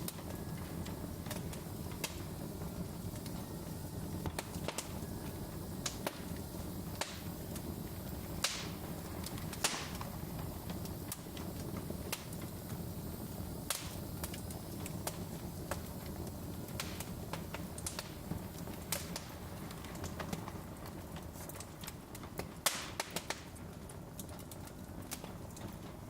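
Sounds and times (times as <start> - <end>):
fire pops and snaps: 0.0 - 26.0
low rumble of flames: 0.0 - 26.0
wood fire crackling: 0.0 - 26.0.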